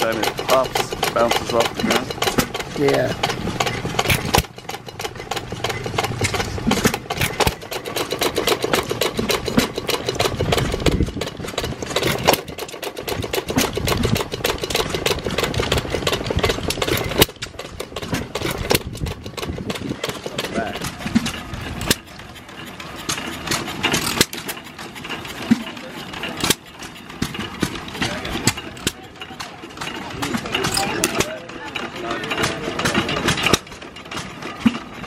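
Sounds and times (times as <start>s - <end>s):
stationary engine clattering: 0.0s - 35.0s.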